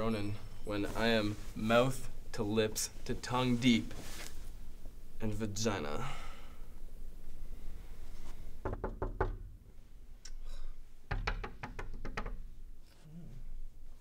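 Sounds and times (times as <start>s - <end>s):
knuckles knocking on wooden door: 8.6s - 9.4s, 11.1s - 12.4s.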